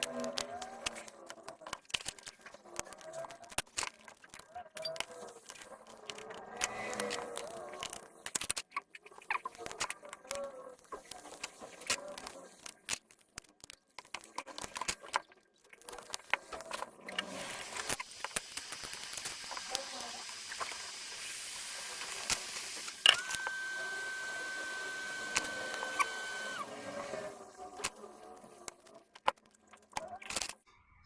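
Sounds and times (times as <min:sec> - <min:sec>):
tools clicking and tapping: 0:00.0 - 0:19.8, 0:22.0 - 0:26.6
steady hiss: 0:17.4 - 0:27.9
sharp click: 0:22.1 - 0:26.7
high electronic tone: 0:22.5 - 0:27.4.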